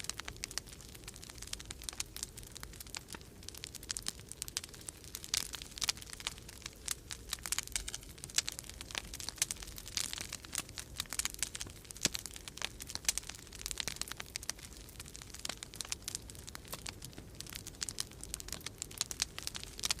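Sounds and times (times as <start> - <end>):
wood fire crackling and popping: 0.0 - 20.0.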